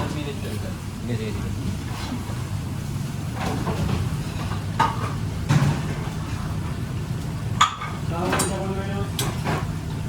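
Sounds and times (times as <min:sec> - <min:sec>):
utensils and pans clinking: 0:07.6 - 0:09.7.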